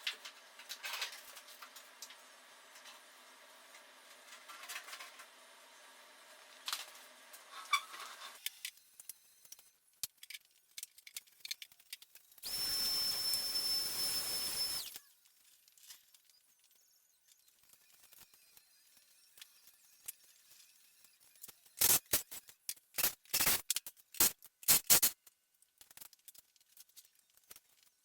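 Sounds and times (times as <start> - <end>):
power tool whining: 12.4 - 15.1.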